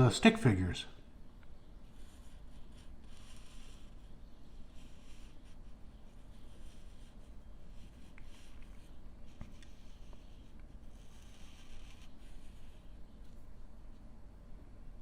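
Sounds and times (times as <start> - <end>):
low room hum: 0.0 - 15.0
marker scratching on paper: 1.8 - 13.1.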